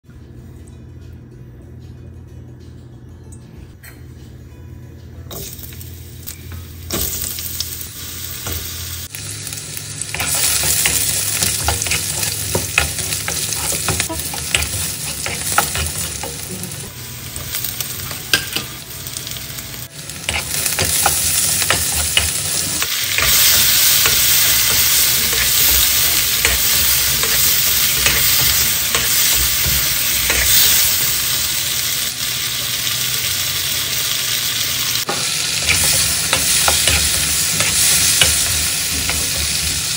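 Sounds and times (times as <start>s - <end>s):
food sizzling in hot oil: 5.3s - 39.9s.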